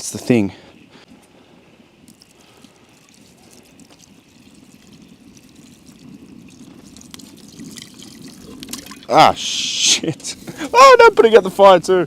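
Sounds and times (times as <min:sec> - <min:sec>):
water pouring into a pot: 0:02.0 - 0:09.3.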